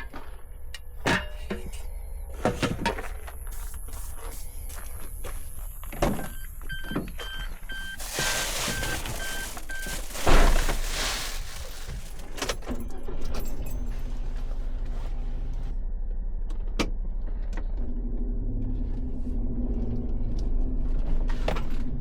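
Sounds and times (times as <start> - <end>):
steady low hum: 0.0 - 21.3
car warning chime beeping: 3.2 - 10.6
car door shutting: 8.0 - 12.9.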